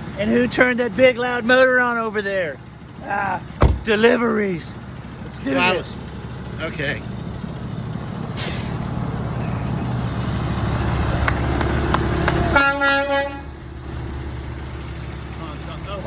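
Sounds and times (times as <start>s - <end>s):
truck engine rumbling: 0.0s - 16.0s
truck horn: 12.0s - 13.7s.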